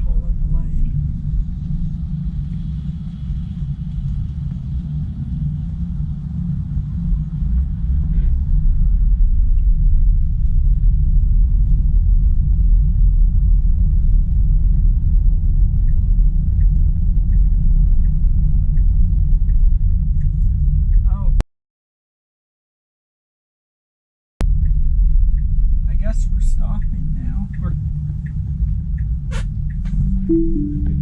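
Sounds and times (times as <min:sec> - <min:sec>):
car road and tyre noise: 0:00.0 - 0:21.2, 0:24.5 - 0:30.3
turn signal ticking: 0:26.6 - 0:31.0.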